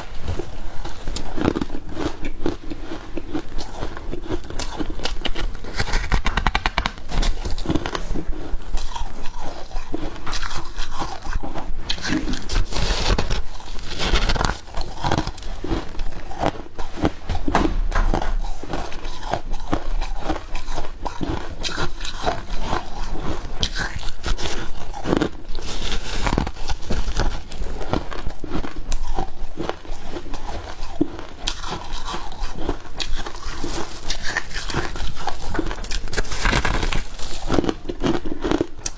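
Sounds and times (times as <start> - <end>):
chewing crunchy ice: 7.8 - 12.8.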